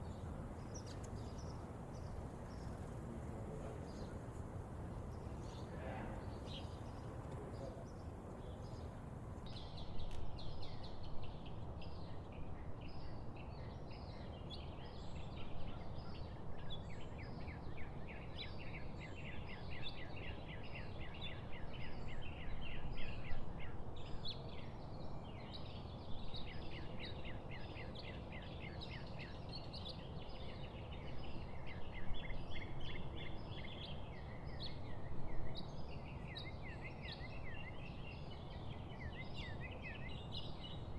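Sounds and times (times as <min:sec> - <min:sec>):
small birds chirping: 0:00.0 - 0:12.0
steady low background noise: 0:00.0 - 0:40.9.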